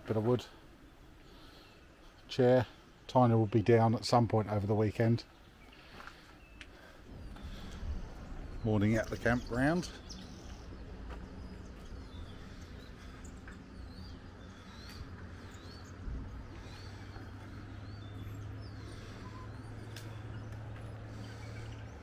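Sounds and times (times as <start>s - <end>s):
birds chirping: 0.0s - 22.0s
low background hiss: 0.0s - 22.0s.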